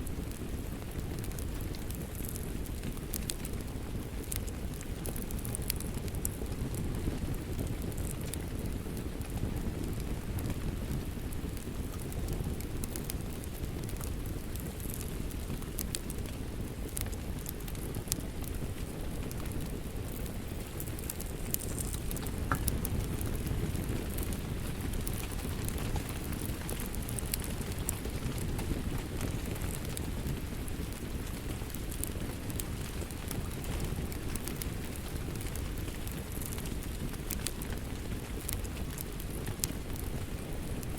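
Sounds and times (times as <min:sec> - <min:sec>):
steady rain: 0:00.0 - 0:40.9
wood fire crackling and popping: 0:00.0 - 0:40.9.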